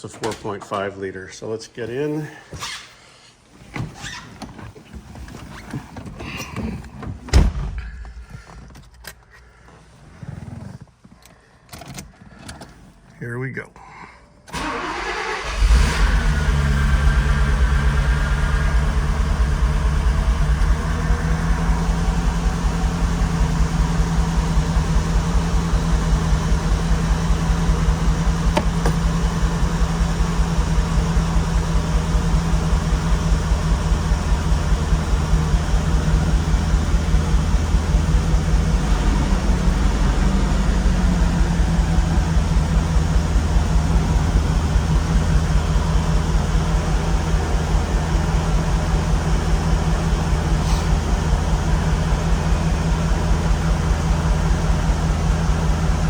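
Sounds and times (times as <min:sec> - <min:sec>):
car engine idling: 0:14.6 - 0:56.0.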